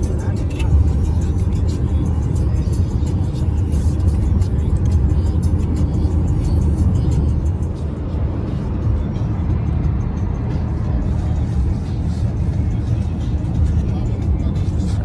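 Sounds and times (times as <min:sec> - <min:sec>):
car rumble inside cabin: 0:00.0 - 0:15.0
music playing: 0:00.0 - 0:15.0.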